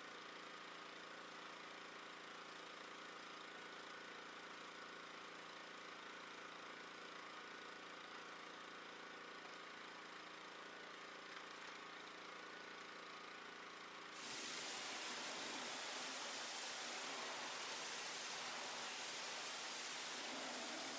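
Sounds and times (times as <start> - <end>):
pressure washer hum: 14.2 - 20.9
water spray hissing: 14.2 - 20.9.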